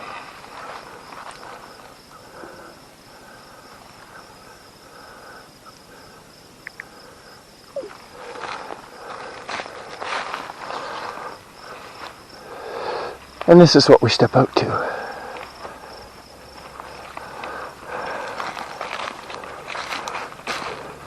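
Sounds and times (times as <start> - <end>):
footsteps rustling on forest floor: 0.0 - 2.2, 7.8 - 12.6, 15.1 - 21.0
insects chirping: 0.0 - 21.0.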